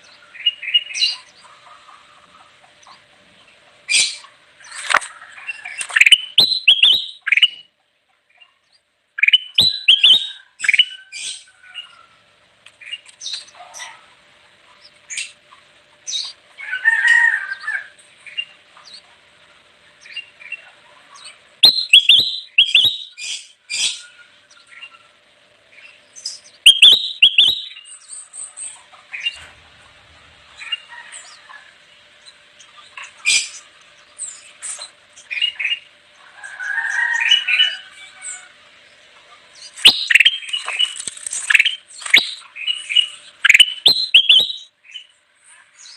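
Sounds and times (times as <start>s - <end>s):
single bird chirps: 4.0s - 7.6s, 21.6s - 24.0s, 25.8s - 28.0s, 39.7s - 44.7s
bird whistled song: 5.7s - 7.7s, 9.2s - 12.0s, 21.2s - 24.9s, 25.8s - 28.4s, 39.6s - 45.1s.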